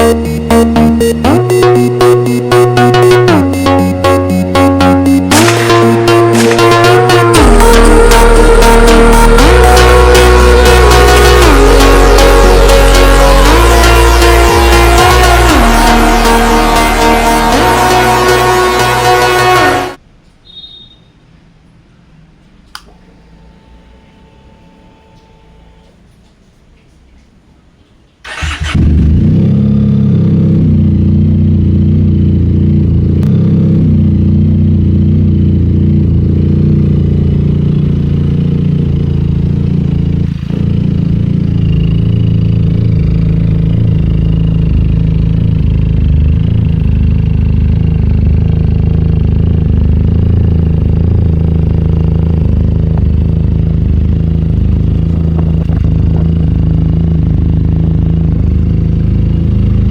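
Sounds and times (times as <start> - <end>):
motorcycle engine idling: 28.3 - 59.9.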